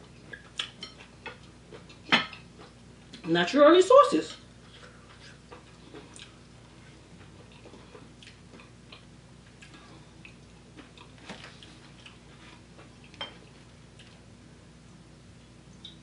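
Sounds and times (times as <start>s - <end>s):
person chewing: 0.1s - 2.8s, 4.7s - 14.3s.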